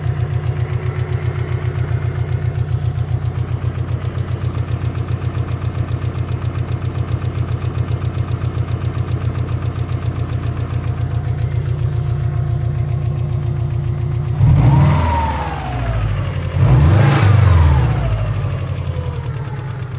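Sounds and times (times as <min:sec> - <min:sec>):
car engine idling with knocking: 0:00.0 - 0:19.9
engine revving: 0:14.3 - 0:19.8.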